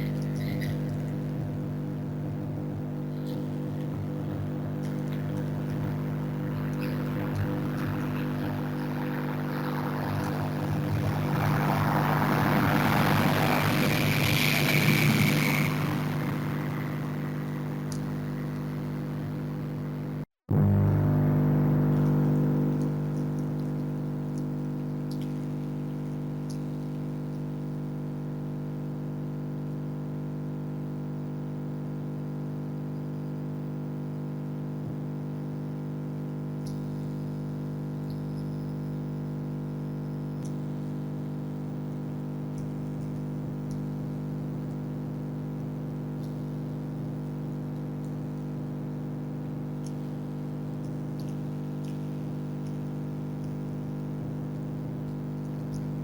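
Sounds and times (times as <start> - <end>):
freezer humming: 0.0 - 24.2.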